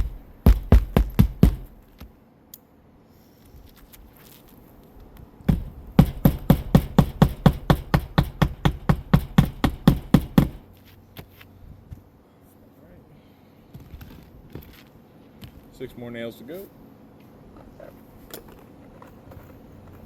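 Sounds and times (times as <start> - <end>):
hammer striking nail: 0.0 - 1.8, 5.5 - 10.6.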